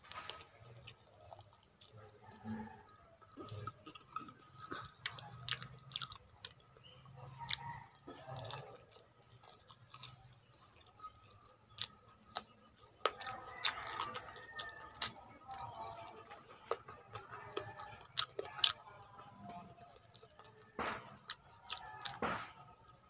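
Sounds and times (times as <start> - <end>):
sharp chewing clicks: 0.2 - 23.0
wet chewing smacks: 0.2 - 23.0.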